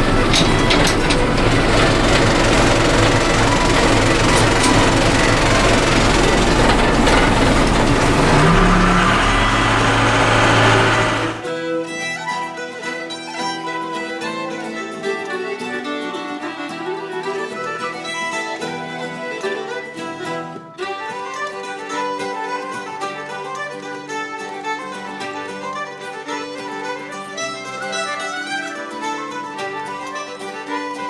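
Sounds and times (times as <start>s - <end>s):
loader engine running: 0.0s - 11.5s
fiddle music: 0.0s - 31.0s.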